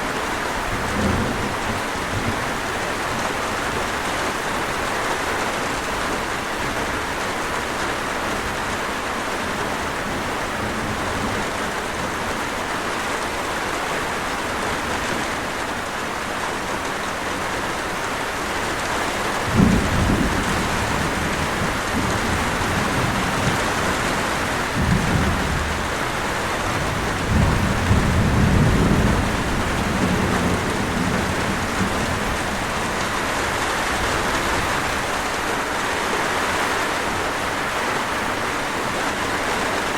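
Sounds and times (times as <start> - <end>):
steady rain falling: 0.0 - 39.9
rolling thunder: 19.4 - 35.3.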